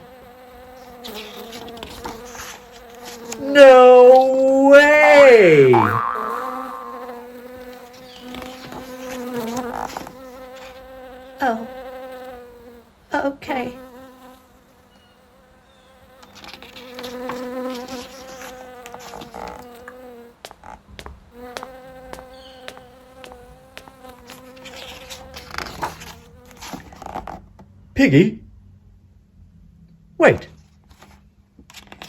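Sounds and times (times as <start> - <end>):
housefly buzzing: 0.0 - 12.9, 13.6 - 20.5, 21.3 - 26.8.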